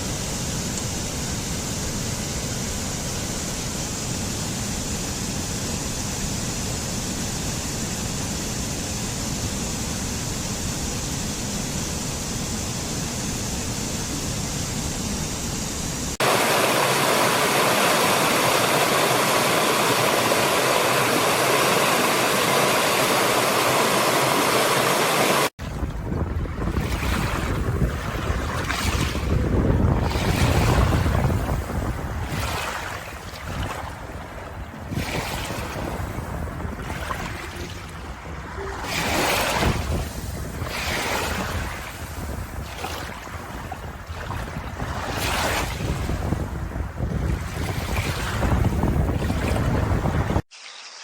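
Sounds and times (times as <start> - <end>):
bright hissing water: 0.0 - 42.6, 50.4 - 51.0
deep rushing water: 16.1 - 50.5.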